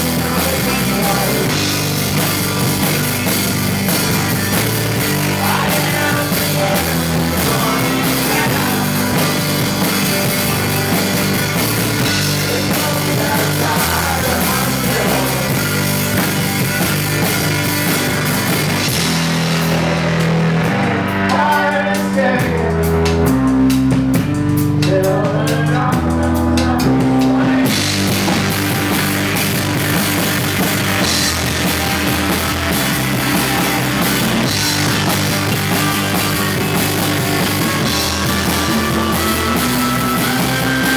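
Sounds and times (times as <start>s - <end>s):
low bass line: 0.0s - 40.9s
rock band playing: 0.0s - 40.9s.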